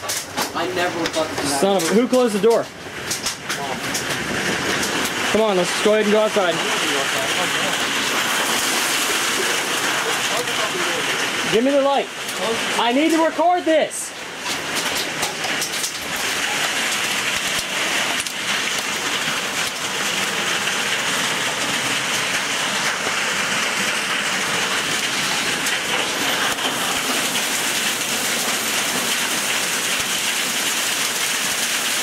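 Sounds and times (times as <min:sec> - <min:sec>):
heavy rain pouring: 0:00.0 - 0:32.0.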